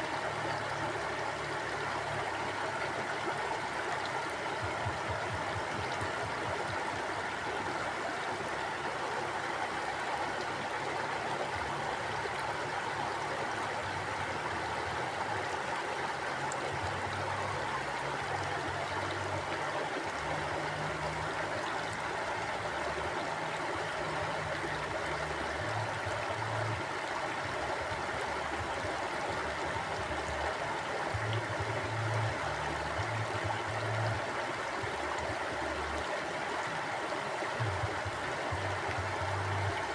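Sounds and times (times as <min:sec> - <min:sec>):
river rushing over rocks: 0:00.0 - 0:39.9
low water rumble: 0:37.6 - 0:39.9.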